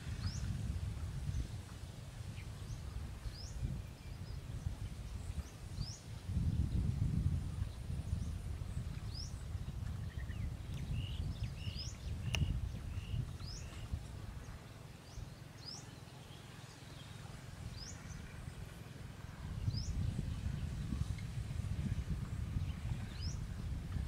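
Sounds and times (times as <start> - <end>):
low outdoor rumble: 0.0 - 24.0
small birds chirping: 1.3 - 18.8.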